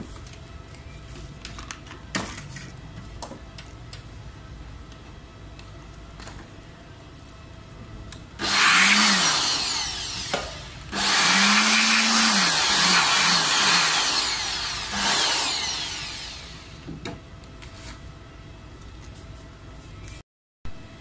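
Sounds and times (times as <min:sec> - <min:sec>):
power tool running: 0:08.4 - 0:16.9.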